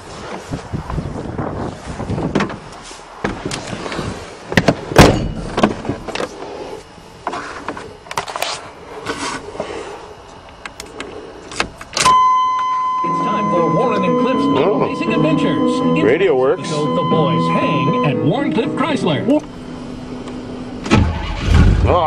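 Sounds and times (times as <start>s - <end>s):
steady electronic tone: 12.0s - 20.8s.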